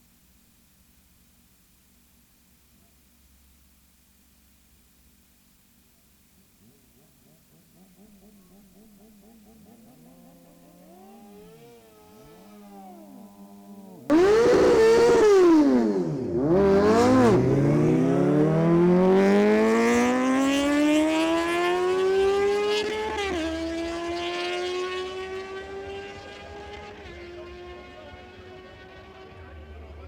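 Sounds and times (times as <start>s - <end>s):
motorcycle engines at full throttle: 6.6s - 30.0s.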